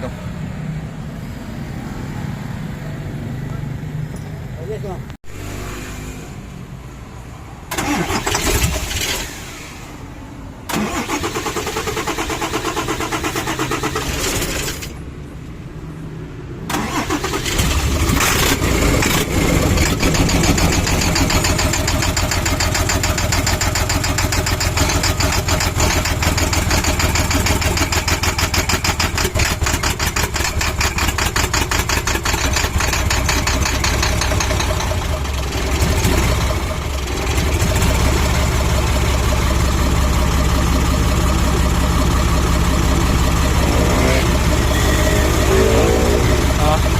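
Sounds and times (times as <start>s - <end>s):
starter cranking diesel engine: 7.7s - 9.8s, 10.7s - 15.0s, 16.7s - 46.9s
diesel engine running: 16.7s - 46.9s.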